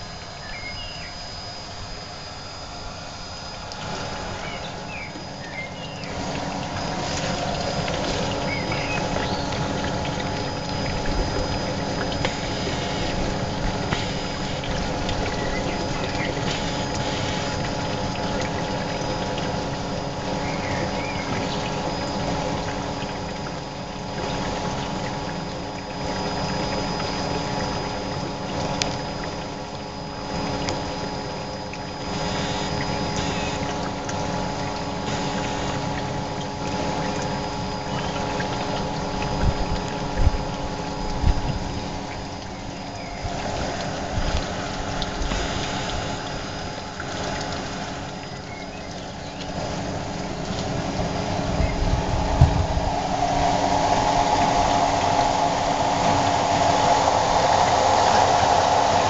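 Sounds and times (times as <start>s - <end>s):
water running: 3.4s - 59.0s
electric motor humming: 32.1s - 33.7s.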